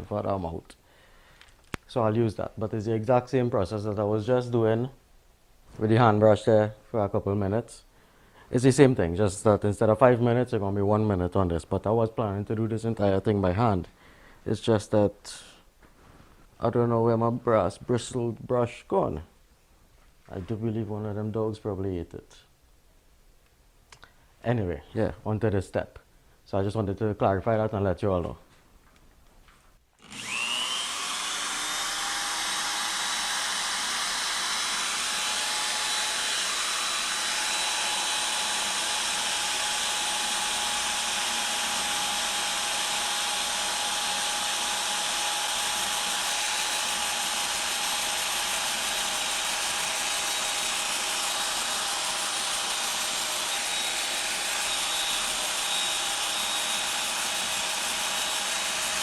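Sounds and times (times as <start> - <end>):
power tool whine: 30.0 - 59.0.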